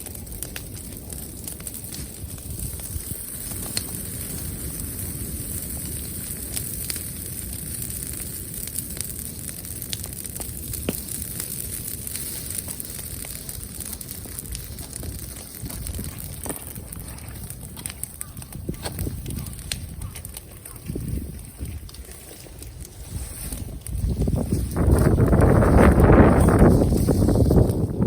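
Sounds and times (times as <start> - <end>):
fire pops and crackles: 0.0 - 28.0
low rushing fire noise: 0.0 - 28.0.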